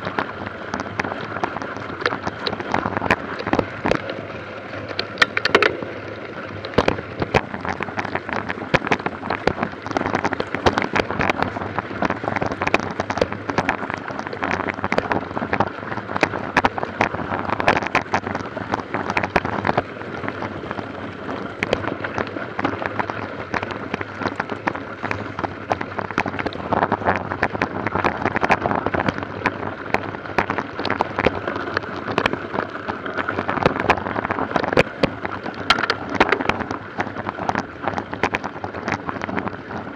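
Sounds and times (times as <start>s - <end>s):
steady rushing noise: 0.0s - 39.9s
bike rattling: 1.9s - 8.3s, 35.6s - 36.8s.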